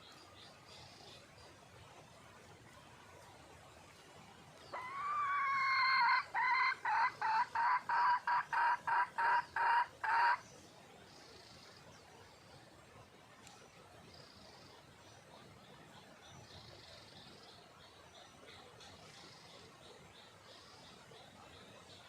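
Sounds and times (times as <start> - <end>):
hen calling: 4.7 - 10.4.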